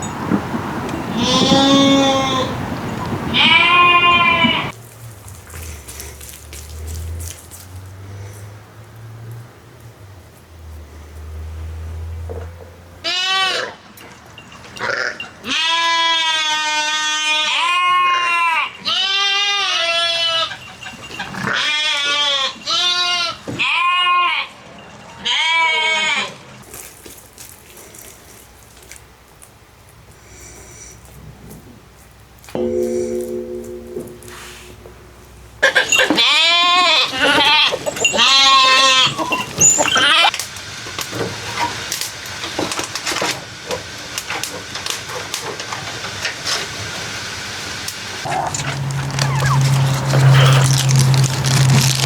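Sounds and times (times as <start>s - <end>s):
goat bleating: 1.1s - 2.6s, 3.3s - 4.7s, 13.0s - 13.8s, 14.8s - 20.6s, 21.3s - 24.6s, 25.2s - 26.4s, 35.8s - 40.3s
oil crackling and popping: 26.6s - 29.5s, 47.8s - 52.0s.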